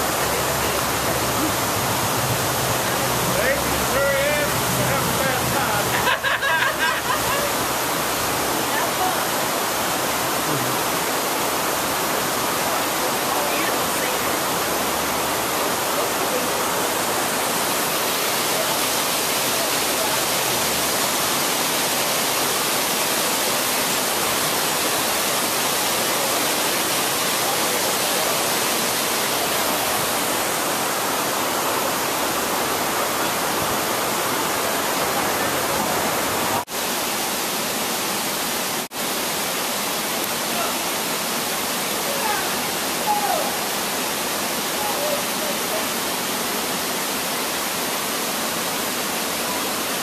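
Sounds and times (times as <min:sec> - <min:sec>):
rush of falling water: 0:00.0 - 0:50.0.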